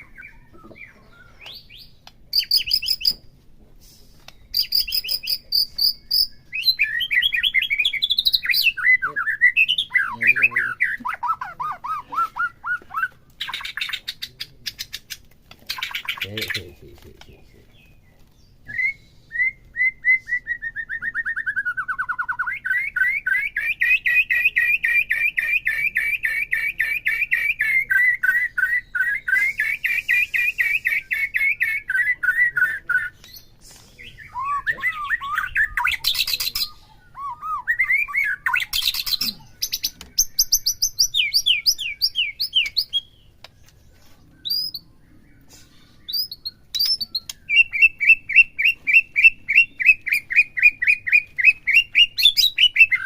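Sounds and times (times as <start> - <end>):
bird singing rapid chirps: 0.0 - 3.3, 4.2 - 53.0
bird high whistles: 18.7 - 32.6.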